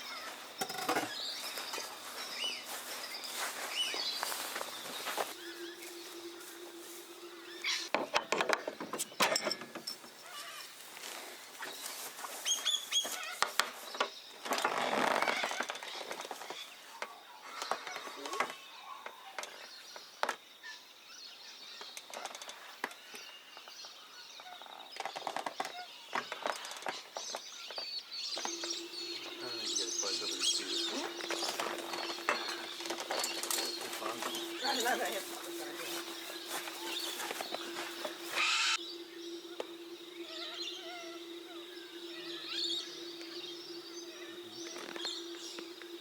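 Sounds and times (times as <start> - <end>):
birds chirping faintly: 0.0 - 46.0.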